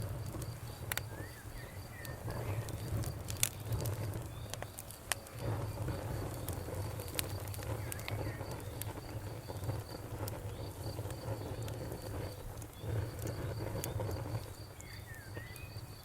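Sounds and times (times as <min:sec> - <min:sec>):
campfire crackling and popping: 0:00.0 - 0:16.0
low rumble of flames: 0:00.0 - 0:16.0
faint high chirp: 0:14.8 - 0:16.0.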